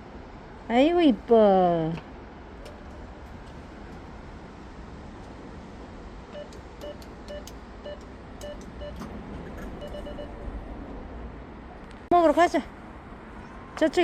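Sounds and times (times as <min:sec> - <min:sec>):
low background rumble: 0:00.0 - 0:14.0
short beeps: 0:06.4 - 0:09.1, 0:09.8 - 0:10.4.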